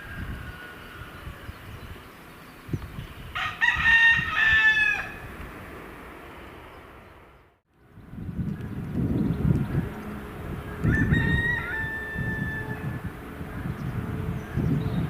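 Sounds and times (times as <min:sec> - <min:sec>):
rooster crowing: 0:00.0 - 0:01.7, 0:03.4 - 0:05.3, 0:09.9 - 0:13.2
low wind rumble: 0:00.0 - 0:15.0.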